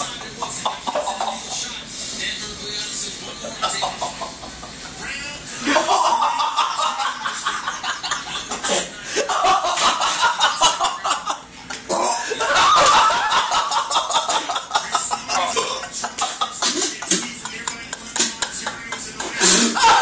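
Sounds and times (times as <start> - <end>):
men laughing: 0.0 - 1.8, 3.3 - 5.0, 5.6 - 20.0
man coughing and gagging: 14.2 - 20.0.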